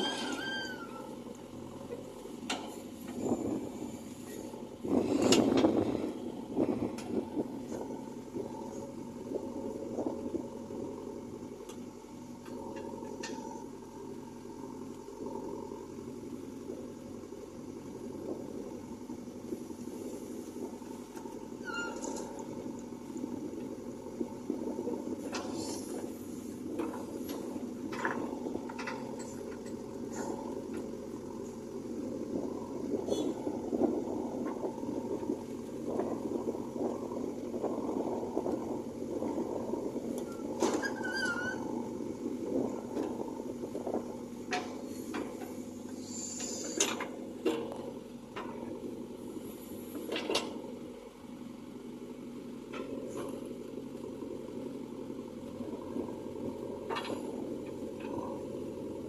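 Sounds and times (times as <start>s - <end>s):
short high squeak: 0.0s - 1.2s, 21.6s - 22.3s, 40.3s - 41.7s
diesel engine running: 0.0s - 59.0s.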